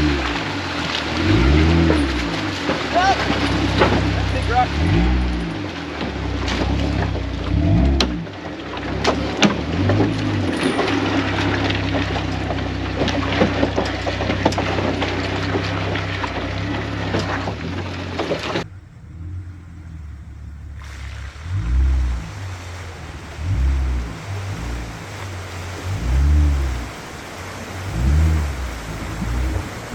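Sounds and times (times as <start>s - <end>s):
knocks and slaps: 0.0s - 18.7s
truck engine running: 0.0s - 29.9s
water splashing: 0.0s - 29.9s.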